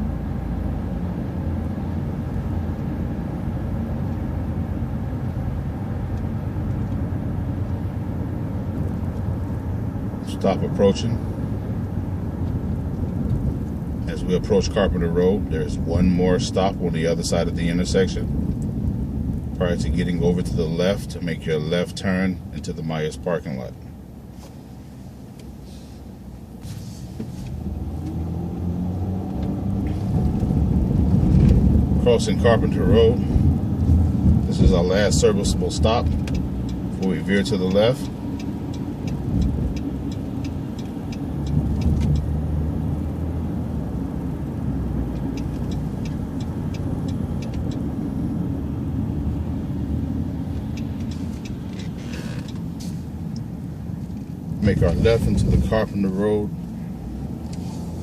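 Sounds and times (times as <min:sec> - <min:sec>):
bus engine rumbling: 0:00.0 - 0:58.0
turn signal ticking: 0:01.4 - 0:20.7, 0:27.2 - 0:58.0
short hiss: 0:25.6 - 0:27.5.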